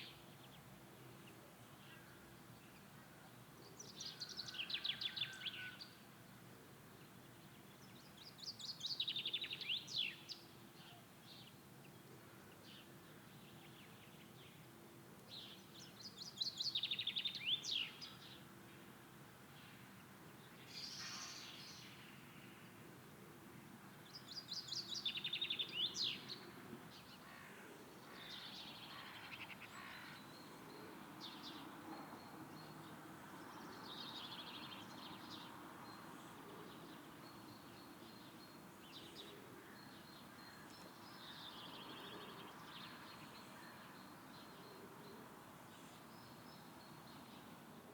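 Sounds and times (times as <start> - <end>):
faint outdoor hiss: 0.0 - 47.9
songbirds singing: 24.0 - 47.9.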